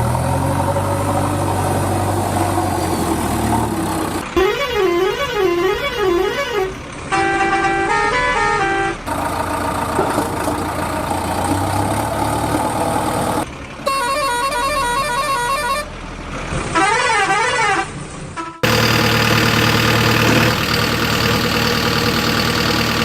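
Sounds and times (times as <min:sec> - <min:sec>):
engine noise: 0:00.0 - 0:23.0
horn-like stepped tune: 0:04.3 - 0:09.0.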